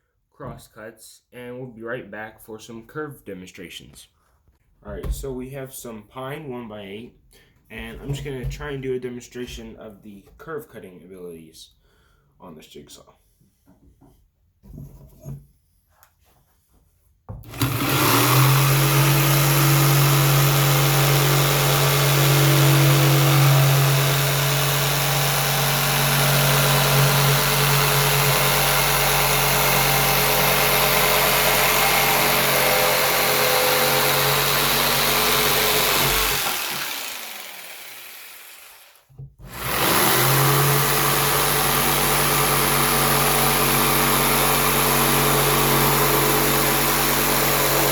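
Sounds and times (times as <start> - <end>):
jigsaw cutting wood: 17.4 - 47.9.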